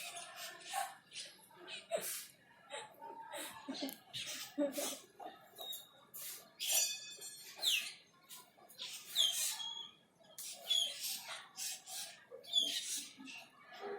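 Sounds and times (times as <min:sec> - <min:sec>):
bird harsh scratchy calls: 0:05.6 - 0:13.6.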